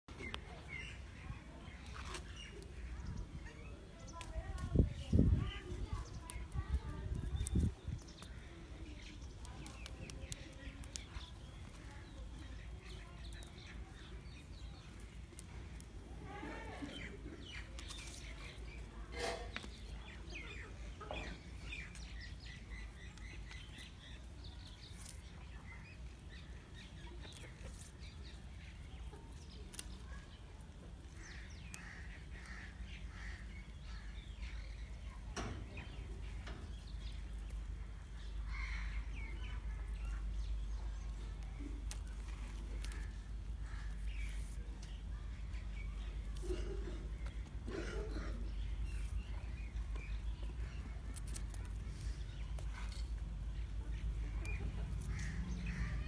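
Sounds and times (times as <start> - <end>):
birds chirping: 0.1 - 56.0
steady low rumble: 30.5 - 56.0.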